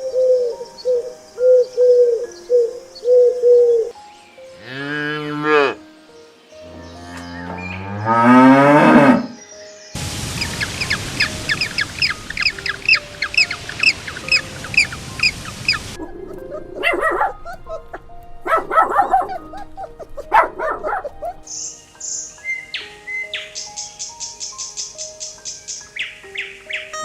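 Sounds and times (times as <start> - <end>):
soft background music: 0.0 - 27.0
cow mooing: 4.6 - 5.8, 6.7 - 9.4
hiss: 10.0 - 16.0
rapid bird chirping: 10.3 - 27.0.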